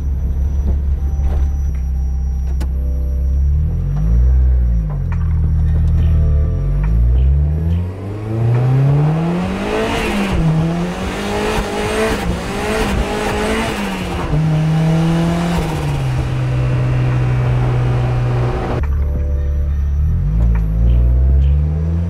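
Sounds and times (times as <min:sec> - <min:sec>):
car engine accelerating hard: 0:06.6 - 0:18.8, 0:20.0 - 0:22.0.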